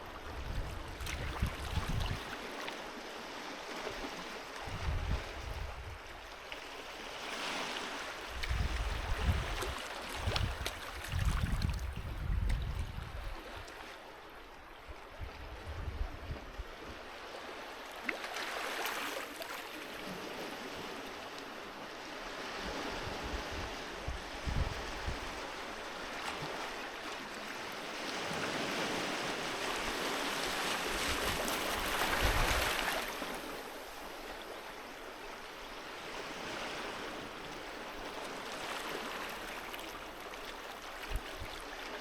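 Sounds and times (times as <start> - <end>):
sea waves washing onto beach: 17.0 - 42.0.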